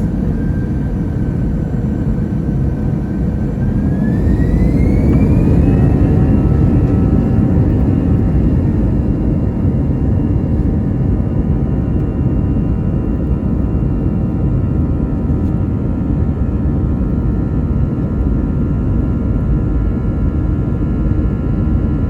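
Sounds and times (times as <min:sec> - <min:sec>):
heavy engine rumble: 0:00.0 - 0:12.4
jet engine whine rising: 0:00.0 - 0:22.0.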